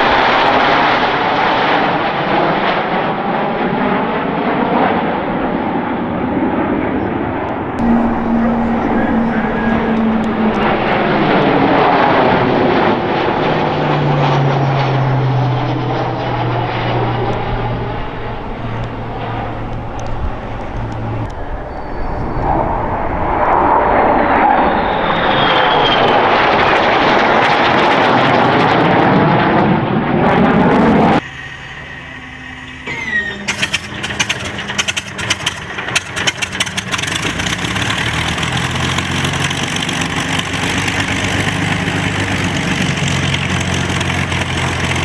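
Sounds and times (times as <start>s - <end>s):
military aircraft flying low overhead: 0.0s - 45.0s.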